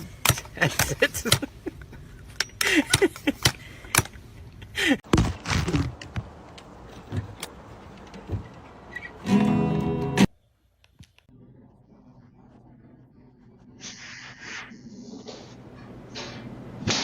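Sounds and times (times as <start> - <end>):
acoustic guitar music: 9.2 - 10.3.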